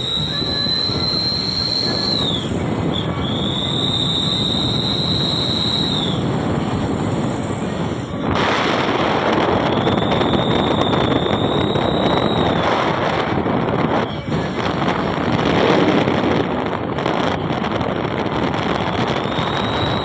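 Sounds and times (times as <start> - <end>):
high steady whistle: 0.0 - 8.0, 9.2 - 12.9, 17.0 - 20.0
vehicle rumbling travel noise: 0.0 - 20.0.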